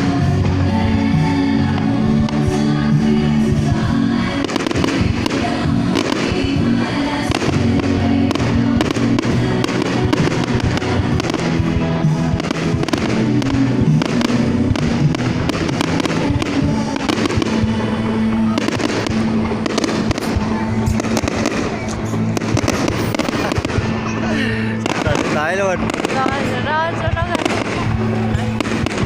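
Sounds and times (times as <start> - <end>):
fireworks bangs and crackles: 0.0 - 29.0
music playing: 0.0 - 29.0.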